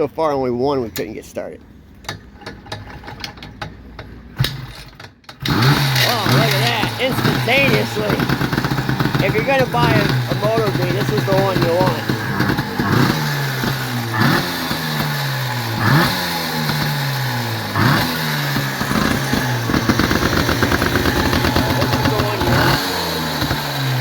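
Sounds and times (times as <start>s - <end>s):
motorcycle engine revving: 5.4s - 24.0s.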